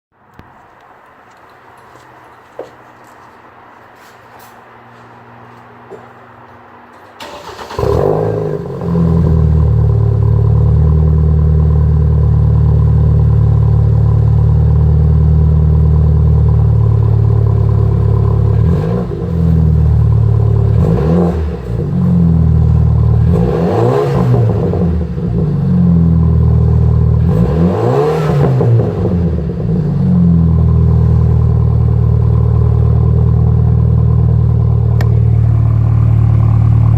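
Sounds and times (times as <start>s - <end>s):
car engine idling loudly: 30.6s - 36.9s.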